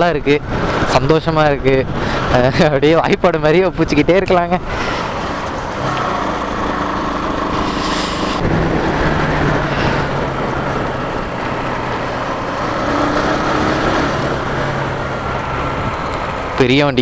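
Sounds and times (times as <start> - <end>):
wind rushing over microphone: 4.6 - 16.7
motorcycle engine cruising: 4.6 - 17.0.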